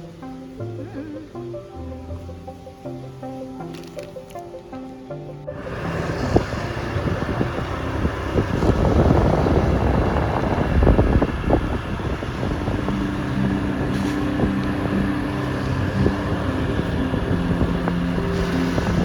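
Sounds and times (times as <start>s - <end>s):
steady engine note: 5.5s - 19.0s
wind rushing over microphone: 5.5s - 19.0s.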